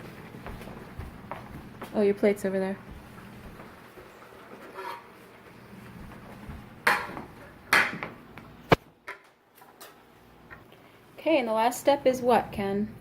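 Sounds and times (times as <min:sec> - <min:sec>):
cookware knocks and scrapes: 0:04.6 - 0:05.1, 0:06.8 - 0:08.1.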